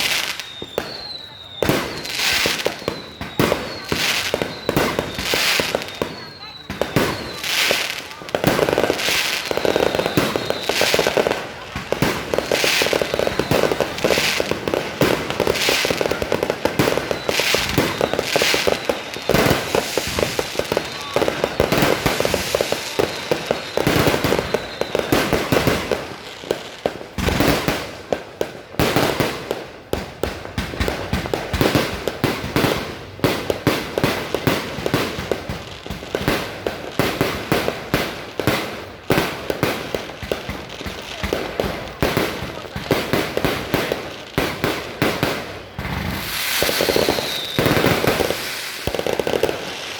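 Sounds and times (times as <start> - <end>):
big firework bursts: 0.0 - 49.9
fireworks bangs and crackles: 0.0 - 49.9.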